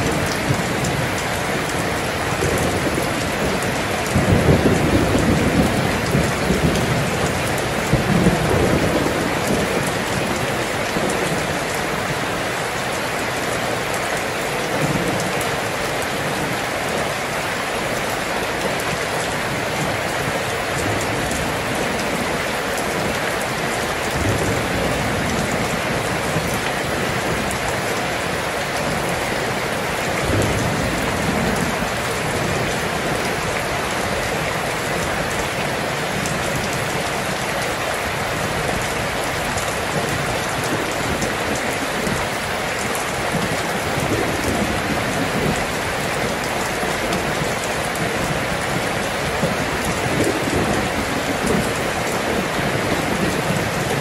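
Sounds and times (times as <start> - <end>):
heavy rain falling: 0.0 - 54.0
thunder rumbling: 0.0 - 54.0.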